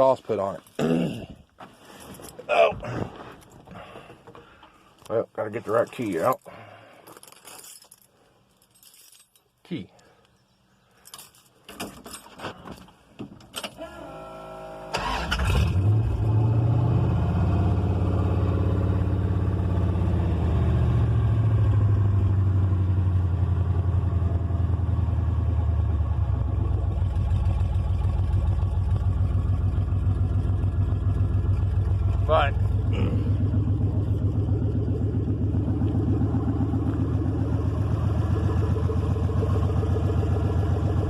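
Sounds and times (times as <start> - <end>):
keys jingling: 5.8 - 9.6, 11.0 - 12.4
engine cranking and idling: 14.9 - 16.4, 25.3 - 41.0.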